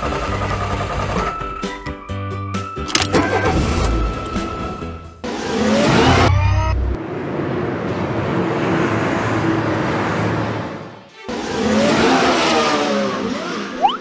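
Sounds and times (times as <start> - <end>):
car engine revving: 11.3 - 14.0.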